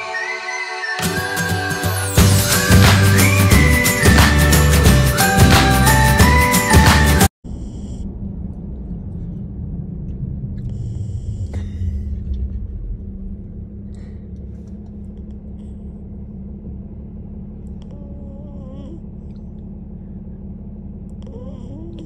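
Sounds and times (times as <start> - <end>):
road rumble inside car: 7.5 - 22.0.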